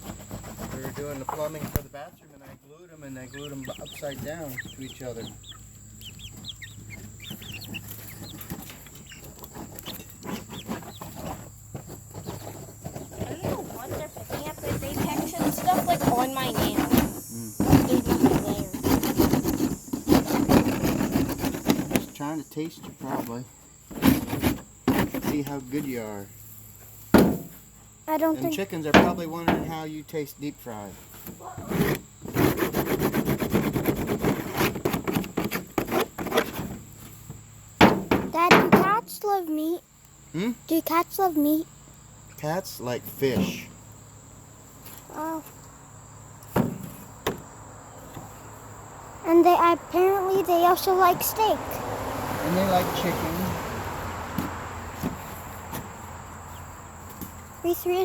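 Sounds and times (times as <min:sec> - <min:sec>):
rasping scraping clatter: 0:00.0 - 0:02.6, 0:06.4 - 0:25.5
scuffing and rustling: 0:00.0 - 0:22.2, 0:54.4 - 0:58.0
chicks peeping: 0:02.8 - 0:22.7, 0:55.9 - 0:57.7.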